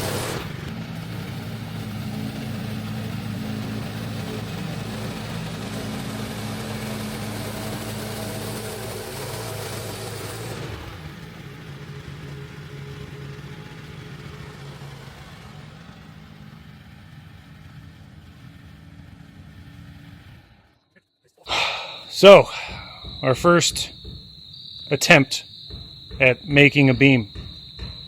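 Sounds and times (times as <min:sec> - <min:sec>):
small gas engine running: 0:00.0 - 0:20.6.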